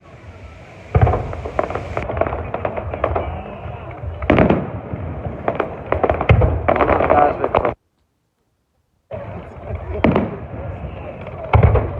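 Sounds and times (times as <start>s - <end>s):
firework bangs: 0.0s - 7.8s, 9.1s - 11.9s
crackling firework pops: 0.7s - 7.8s, 9.7s - 11.9s.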